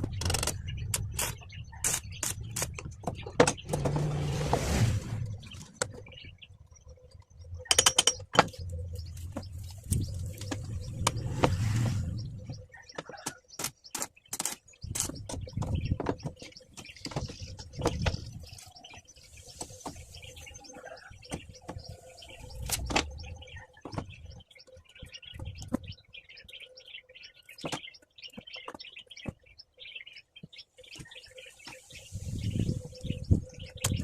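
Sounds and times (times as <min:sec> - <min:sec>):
steel work clicks and knocks: 0:07.7 - 0:08.6.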